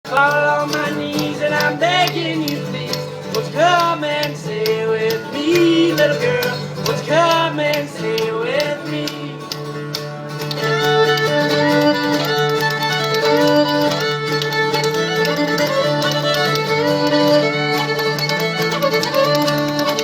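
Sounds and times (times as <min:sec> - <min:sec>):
fiddle melody with sliding notes: 0:00.1 - 0:20.0
strummed acoustic guitar: 0:00.1 - 0:20.0
spoons clicking: 0:00.5 - 0:09.6.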